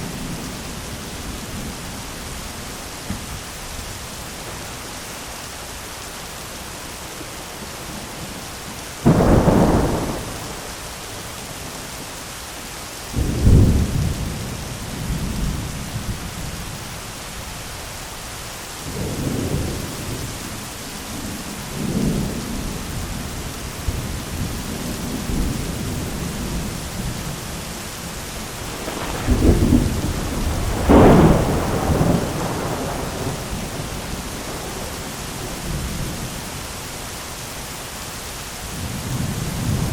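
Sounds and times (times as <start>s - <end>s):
heavy rain on an umbrella: 0.0s - 39.9s
thunder claps and rumbles: 9.0s - 11.9s, 13.2s - 16.6s, 28.6s - 36.4s, 38.7s - 39.9s.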